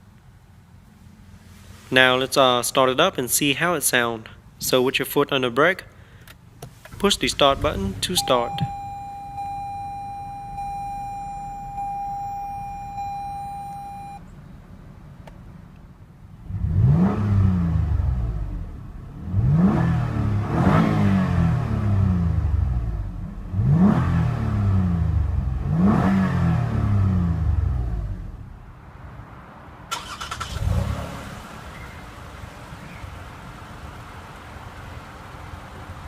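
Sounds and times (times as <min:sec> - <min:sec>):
electronic warning chime: 0:08.2 - 0:14.2
car engine revving: 0:16.3 - 0:28.6, 0:29.9 - 0:35.8.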